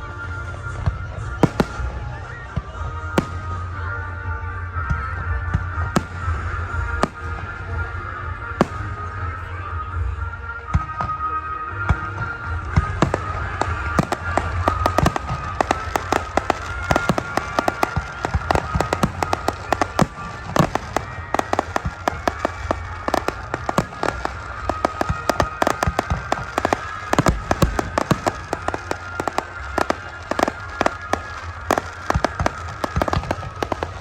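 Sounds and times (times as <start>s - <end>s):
fireworks cracking and popping: 0.7s - 4.0s, 5.0s - 9.6s, 12.3s - 34.0s.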